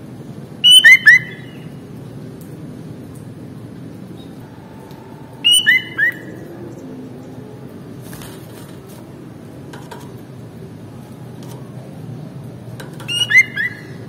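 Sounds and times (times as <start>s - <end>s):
low background hum: 0.0s - 14.0s
bird whistled notes: 0.6s - 1.5s, 5.4s - 6.4s, 13.1s - 14.0s.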